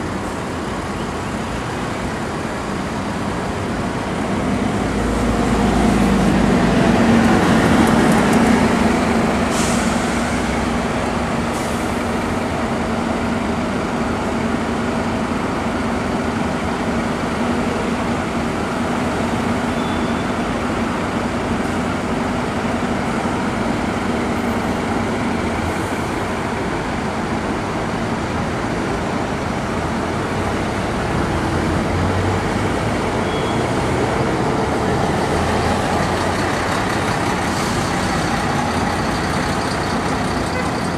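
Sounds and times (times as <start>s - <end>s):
bus diesel engine pulling away: 0.0s - 40.9s
road noise: 0.0s - 40.9s
short hisses of air: 9.5s - 10.3s.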